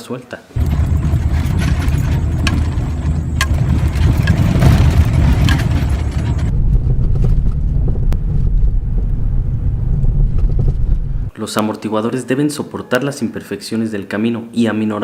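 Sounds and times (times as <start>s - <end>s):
suspension knocks: 0.6s - 8.0s
car rumbling over rough road: 0.6s - 11.3s.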